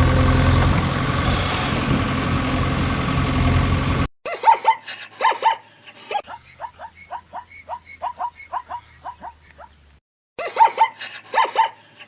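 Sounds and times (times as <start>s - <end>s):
engine running: 0.0s - 4.1s
yelp-like animal barks: 6.2s - 9.8s, 10.6s - 11.8s.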